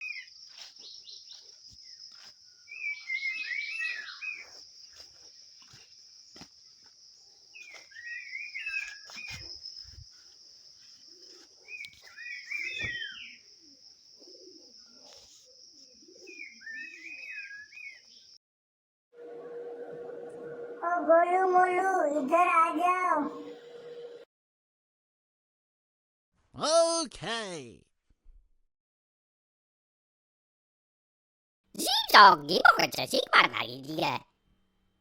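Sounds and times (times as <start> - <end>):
songbird warbling: 2.7 - 4.5, 7.6 - 10.0, 11.1 - 14.7, 16.0 - 18.2.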